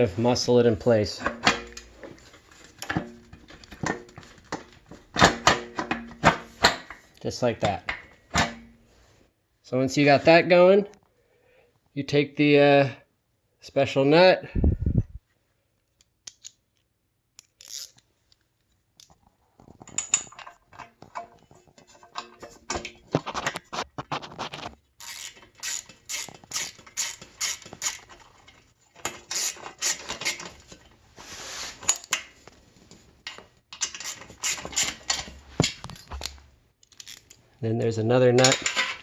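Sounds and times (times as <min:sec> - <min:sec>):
wrench clicking on a nut: 0:17.4 - 0:18.0, 0:25.0 - 0:28.1.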